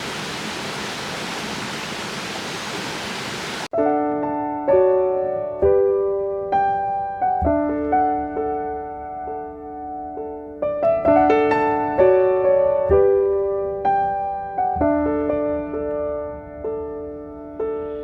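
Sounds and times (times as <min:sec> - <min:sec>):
mountain stream rushing: 0:00.0 - 0:03.7
slow piano chords: 0:03.7 - 0:18.0.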